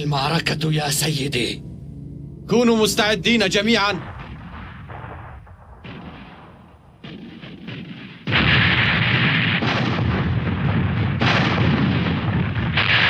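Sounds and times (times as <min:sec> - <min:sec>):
cartoon cannon blasts: 0:04.0 - 0:13.0.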